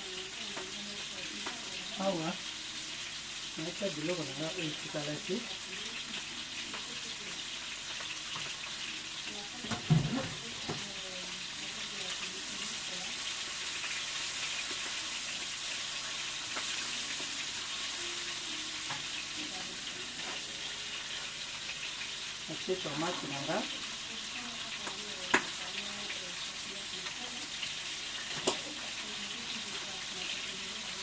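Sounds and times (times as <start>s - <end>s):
food sizzling in a pot: 0.0s - 31.0s.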